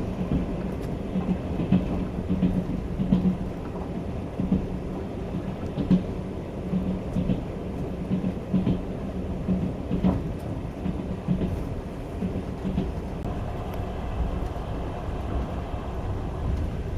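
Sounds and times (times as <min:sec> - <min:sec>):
wheels knocking and clattering: 0:00.0 - 0:06.1, 0:06.7 - 0:13.3
train rumbling along track: 0:00.0 - 0:16.9.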